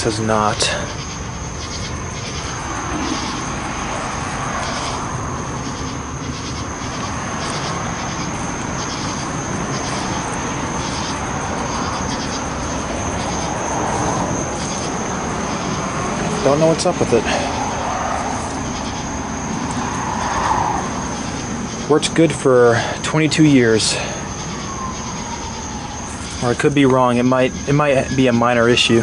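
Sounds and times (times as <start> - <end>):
low rushing rumble: 0.0 - 22.6
night insects trilling: 0.0 - 29.0.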